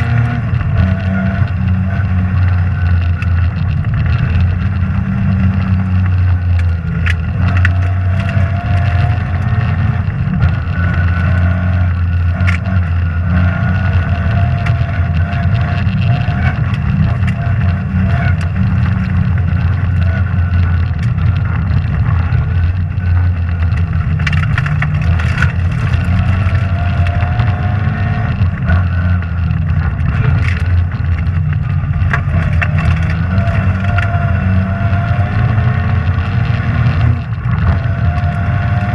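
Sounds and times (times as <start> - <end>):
rally car engine running hard: 0.0 - 38.9.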